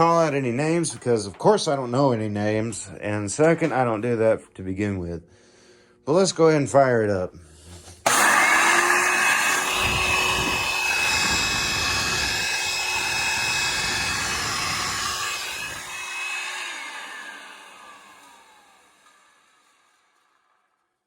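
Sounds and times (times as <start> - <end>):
fan spinning down: 7.8 - 20.8
vacuum cleaner motor whine: 8.0 - 20.6.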